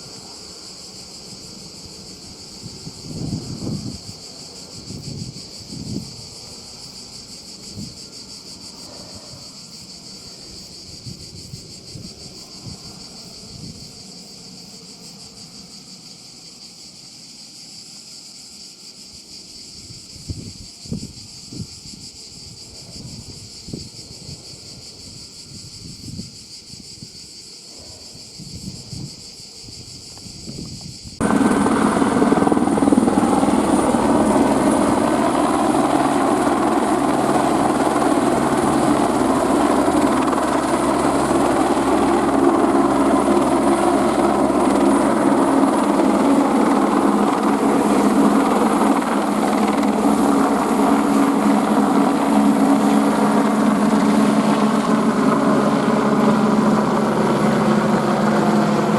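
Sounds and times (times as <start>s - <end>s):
helicopter engine and rotors: 0.0s - 26.5s, 27.1s - 58.9s
high insect chorus: 0.0s - 58.9s
high turbine whine: 30.4s - 58.9s.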